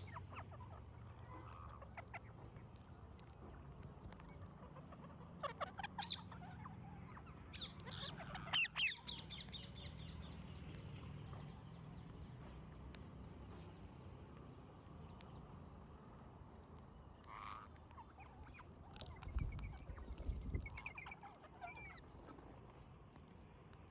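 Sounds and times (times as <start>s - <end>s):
parrots squawking: 4.6s - 9.3s, 17.2s - 22.0s.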